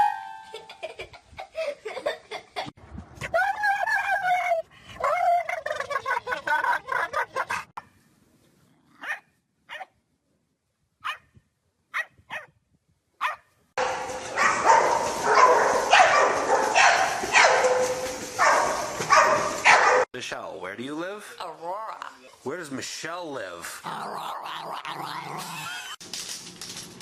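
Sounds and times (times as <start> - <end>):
dog barking and yipping: 9.0 - 9.9, 11.0 - 11.3, 11.9 - 12.5, 13.2 - 20.1.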